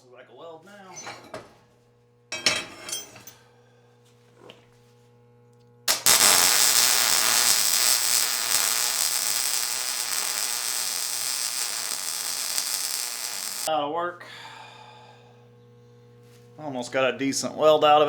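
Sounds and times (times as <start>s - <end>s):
welding arc crackling: 5.9s - 13.7s.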